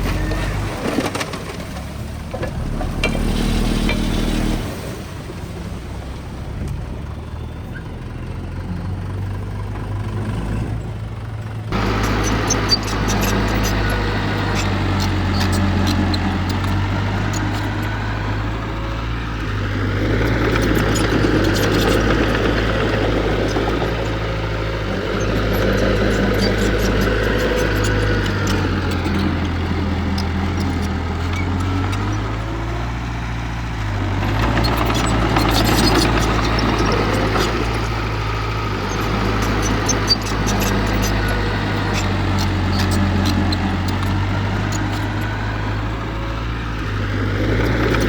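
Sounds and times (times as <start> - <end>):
heavy diesel engine running: 0.0 - 48.0
faint clicks and rattles: 33.8 - 46.0.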